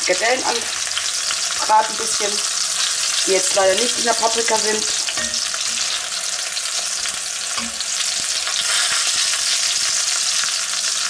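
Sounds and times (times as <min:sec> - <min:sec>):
meat sizzling in butter: 0:00.0 - 0:11.0
spatula tapping and scraping: 0:03.8 - 0:06.1, 0:07.6 - 0:08.8.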